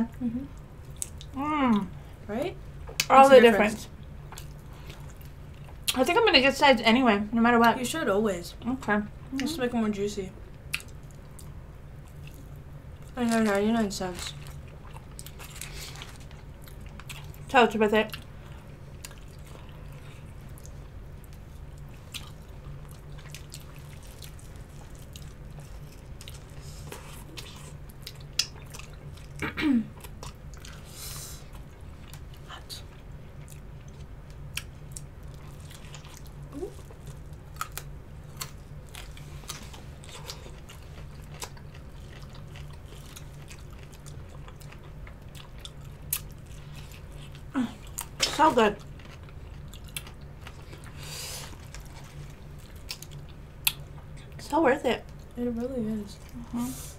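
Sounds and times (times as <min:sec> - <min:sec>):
steady low hum: 0:00.0 - 0:56.9
wet chewing and mouth smacks: 0:10.6 - 0:13.1, 0:18.9 - 0:29.4, 0:31.5 - 0:54.4.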